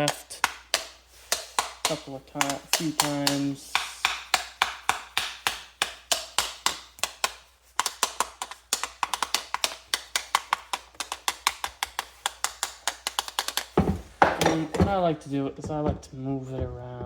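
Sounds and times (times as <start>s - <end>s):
rapid tapping on metal shaft: 0.0s - 16.0s.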